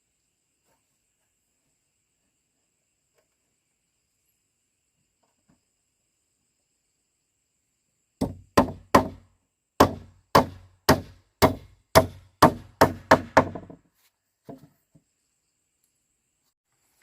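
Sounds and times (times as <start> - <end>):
sharp wooden knocks: 8.2 - 9.2, 9.8 - 13.8.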